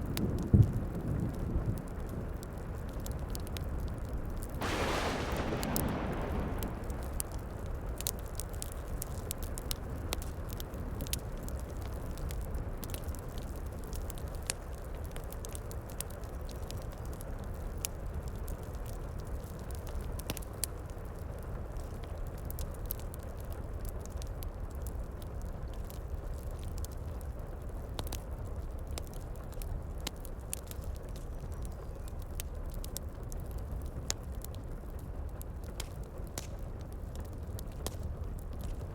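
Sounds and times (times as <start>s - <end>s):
wood fire crackling and popping: 0.0s - 20.9s, 21.8s - 38.9s
loud rumble: 4.6s - 8.1s
heavy rain: 4.6s - 8.8s.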